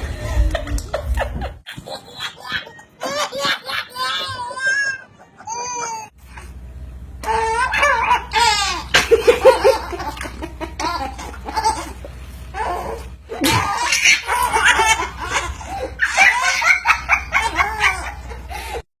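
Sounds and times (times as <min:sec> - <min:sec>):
people laughing: 0:00.0 - 0:06.1, 0:08.9 - 0:12.1, 0:13.3 - 0:18.8.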